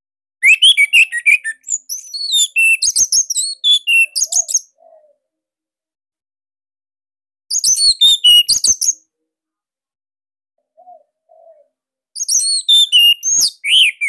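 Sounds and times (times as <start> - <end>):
thrush singing whistled notes: 0.4 - 4.7, 7.5 - 9.0, 12.2 - 14.0.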